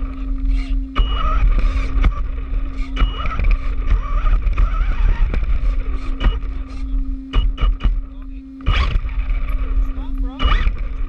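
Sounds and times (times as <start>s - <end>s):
electric toy car motor whine: 0.0s - 8.0s, 8.6s - 11.0s
low rumble over rough ground: 0.0s - 11.0s
sharp knocks from bumps: 2.8s - 3.7s.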